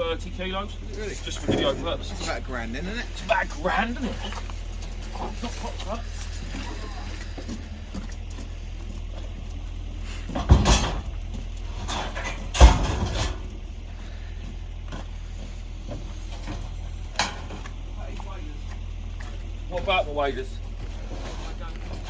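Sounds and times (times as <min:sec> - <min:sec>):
steady low hum: 0:00.0 - 0:22.0
scrap metal knocks and bangs: 0:01.1 - 0:02.6, 0:10.1 - 0:13.7, 0:15.8 - 0:17.7.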